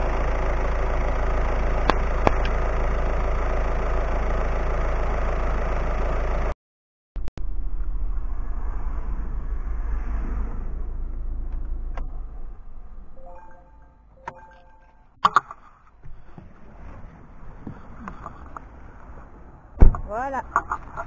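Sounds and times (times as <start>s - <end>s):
car engine idling: 0.0s - 6.5s, 15.3s - 21.0s.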